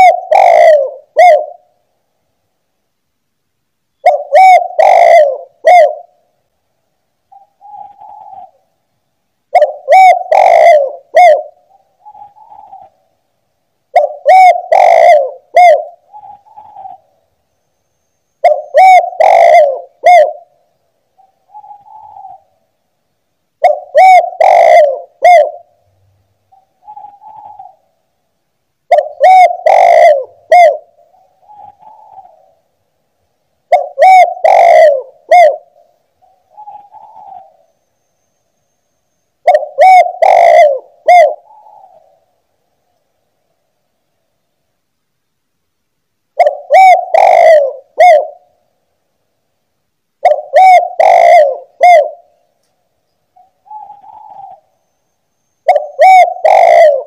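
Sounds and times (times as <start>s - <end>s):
dove cooing: 0.0s - 1.8s, 4.0s - 6.4s, 7.3s - 8.8s, 9.5s - 13.1s, 13.9s - 17.3s, 18.4s - 22.7s, 23.6s - 25.8s, 26.5s - 28.1s, 28.9s - 32.7s, 33.6s - 37.8s, 39.4s - 42.4s, 46.4s - 48.7s, 50.2s - 52.5s, 53.3s - 55.0s, 55.6s - 57.0s.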